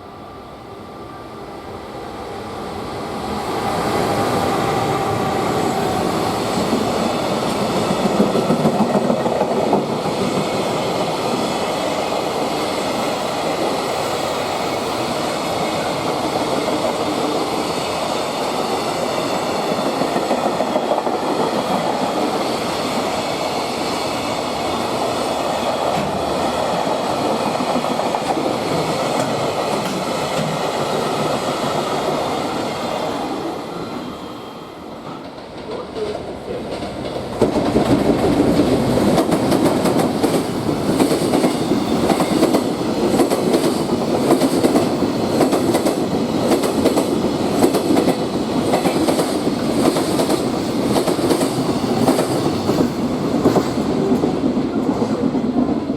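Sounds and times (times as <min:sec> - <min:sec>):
train wheels clicking over rail joints: 0:35.1 - 0:55.8.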